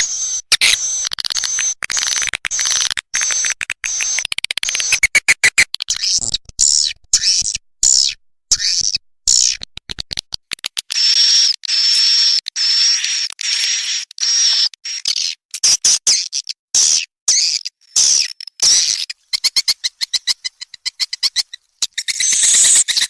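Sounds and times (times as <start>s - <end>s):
sharp clicks: 0.0s - 14.8s
high buzzy bird calls: 17.3s - 23.0s
buzzy twittering chirps: 17.4s - 23.0s.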